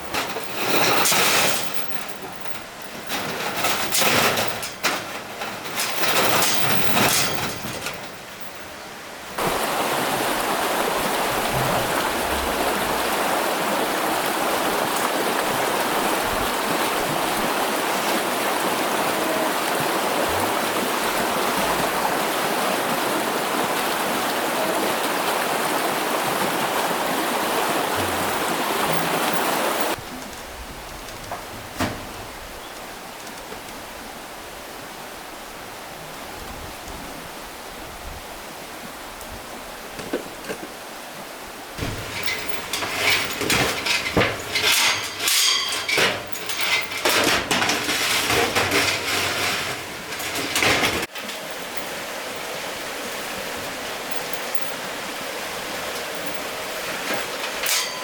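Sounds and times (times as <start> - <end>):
metal objects clanking together: 0.0 - 8.8, 41.8 - 51.9, 56.0 - 58.0
rushing water: 0.0 - 58.0
metallic ring: 41.8 - 51.9, 56.2 - 58.0.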